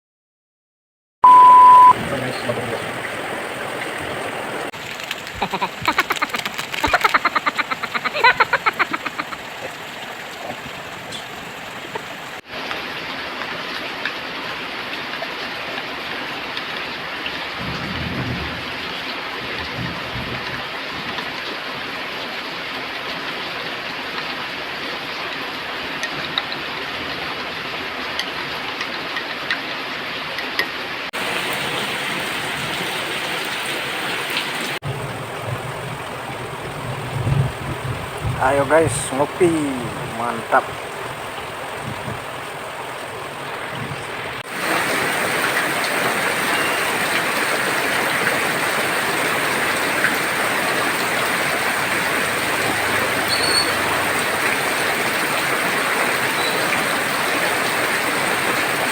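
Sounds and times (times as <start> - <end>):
heavy rain pouring: 1.5 - 58.9
thunder rumble: 1.9 - 5.2, 17.6 - 18.8, 34.8 - 45.4.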